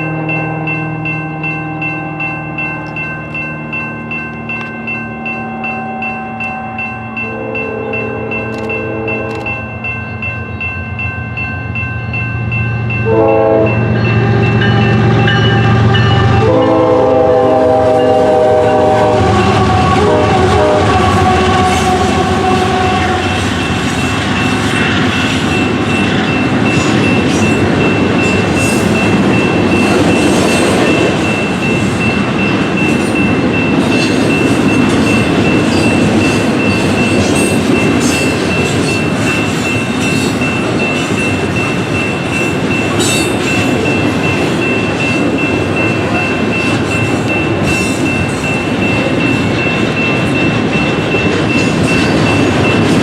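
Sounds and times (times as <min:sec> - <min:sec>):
train horn: 0:00.0 - 0:03.1, 0:05.1 - 0:09.9, 0:13.0 - 0:24.1
train rolling past: 0:00.0 - 0:53.0.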